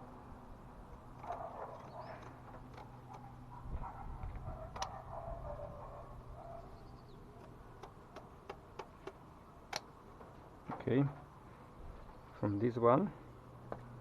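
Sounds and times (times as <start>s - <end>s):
insulation sheets clicking: 1.0s - 3.5s, 7.3s - 10.8s.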